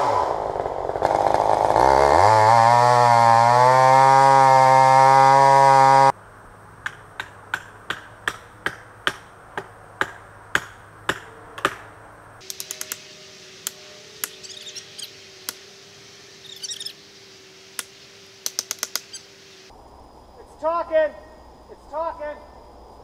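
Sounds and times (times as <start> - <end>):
bird chirping: 12.4 - 19.7.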